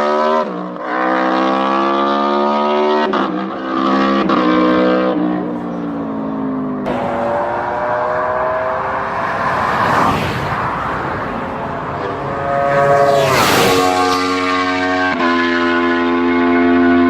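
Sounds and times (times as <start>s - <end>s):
superbike engine at high revs: 0.0s - 5.6s, 6.9s - 10.4s, 11.9s - 17.0s
motorcycle passing by: 6.9s - 17.0s.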